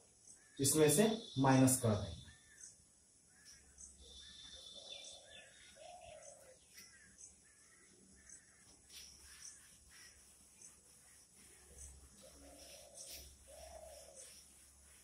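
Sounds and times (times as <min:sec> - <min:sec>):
faint bird calls: 0:00.3 - 0:15.0.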